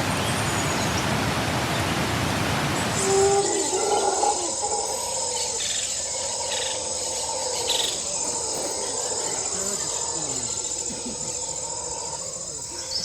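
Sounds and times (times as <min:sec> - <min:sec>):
insects chirring: 0:02.9 - 0:13.0.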